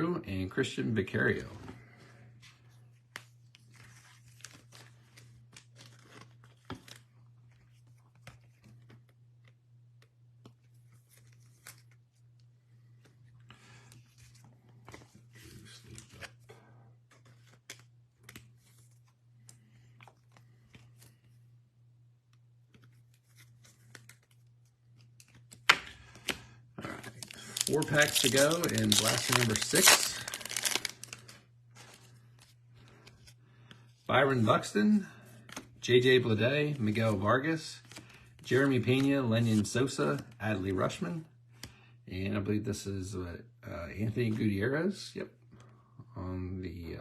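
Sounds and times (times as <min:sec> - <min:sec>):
cards clicking and rustling: 0:03.0 - 0:12.2, 0:12.8 - 0:21.3, 0:22.3 - 0:33.8, 0:37.8 - 0:40.4
foil wrapper tearing: 0:26.8 - 0:31.3.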